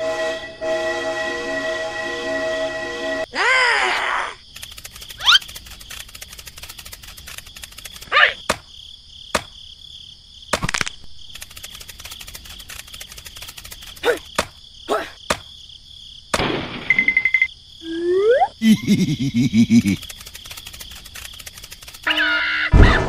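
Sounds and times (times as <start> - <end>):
crickets chirping: 3.2 - 22.7
cartoon clicks: 4.6 - 8.6.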